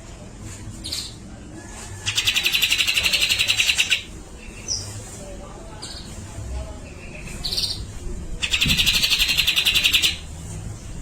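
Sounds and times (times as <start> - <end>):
bird rapid rattling trill: 2.1 - 4.0, 8.4 - 10.2.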